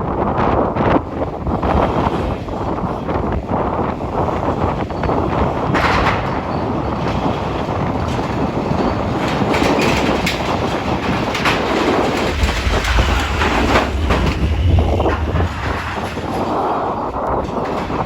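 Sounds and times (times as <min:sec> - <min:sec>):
strong wind buffeting microphone: 0:00.0 - 0:18.0
deep rumble: 0:11.4 - 0:18.0.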